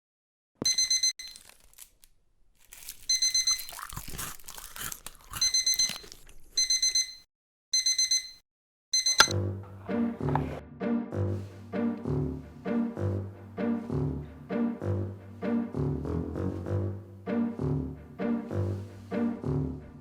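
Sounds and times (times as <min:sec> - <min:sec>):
electronic alarm beeping: 0:00.6 - 0:01.4, 0:03.1 - 0:03.7, 0:05.4 - 0:07.2, 0:07.8 - 0:09.4
rustling and crunching: 0:01.3 - 0:06.5
plucked and bowed string music: 0:09.3 - 0:20.0.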